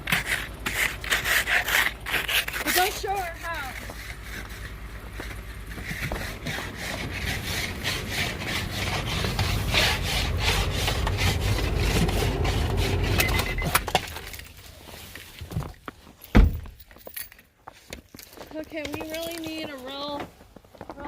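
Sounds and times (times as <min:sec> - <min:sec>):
ice scraper scraping car window: 0:00.0 - 0:14.4
low rumble: 0:03.5 - 0:14.5.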